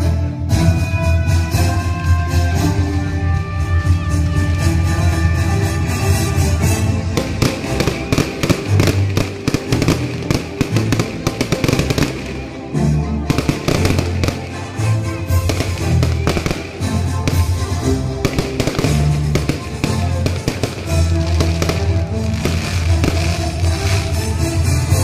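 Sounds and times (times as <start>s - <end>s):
fireworks bursting and crackling: 5.2s - 25.0s
music with heavy bass beat: 13.3s - 25.0s.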